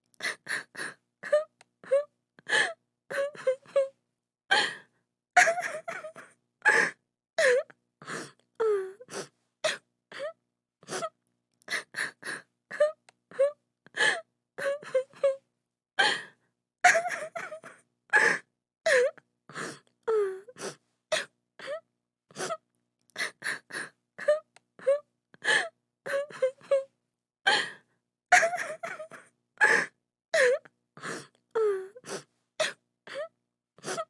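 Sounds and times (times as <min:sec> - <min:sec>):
woman crying: 0:05.4 - 0:06.3, 0:28.3 - 0:30.6.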